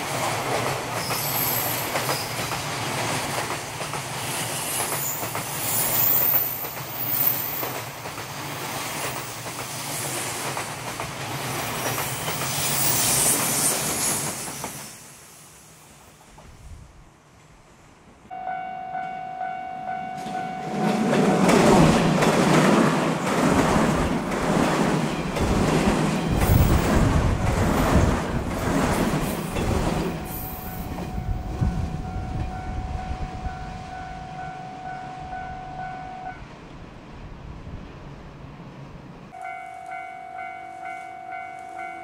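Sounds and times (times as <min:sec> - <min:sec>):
level crossing warning bell: 0:18.3 - 0:21.5, 0:30.1 - 0:36.5, 0:39.4 - 0:42.0
electric train braking: 0:18.3 - 0:22.6, 0:23.2 - 0:36.5
train wheels clattering over joints: 0:20.9 - 0:31.2.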